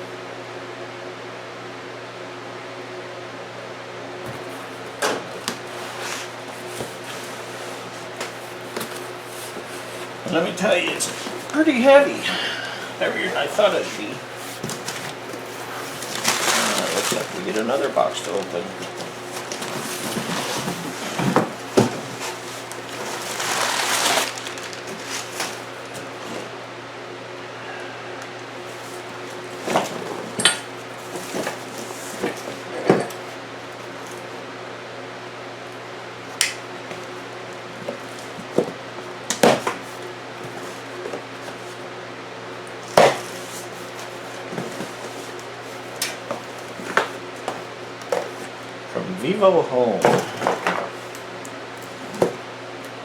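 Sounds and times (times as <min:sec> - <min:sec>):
steady low hum: 0:02.6 - 0:53.0
cardboard scraping and rustling: 0:04.2 - 0:12.2, 0:12.9 - 0:26.6, 0:28.7 - 0:34.3, 0:36.9 - 0:41.8, 0:42.8 - 0:48.7, 0:51.8 - 0:52.5.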